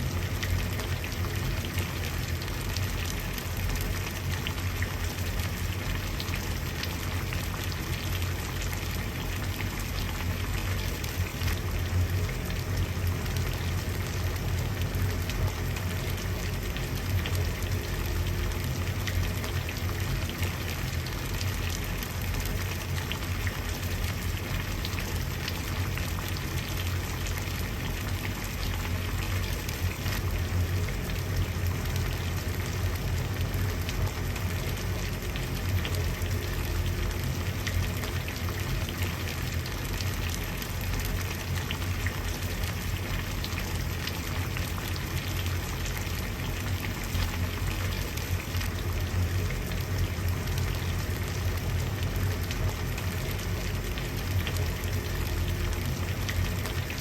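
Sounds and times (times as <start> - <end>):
water boiling and bubbling: 0.0 - 57.0.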